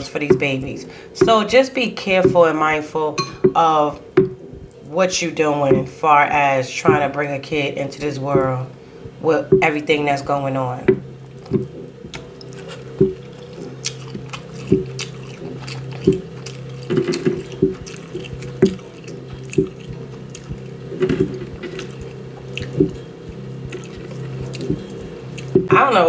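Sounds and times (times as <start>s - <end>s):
steady low hum: 0.0s - 26.0s
wet chewing and lip-smacking: 10.9s - 25.8s.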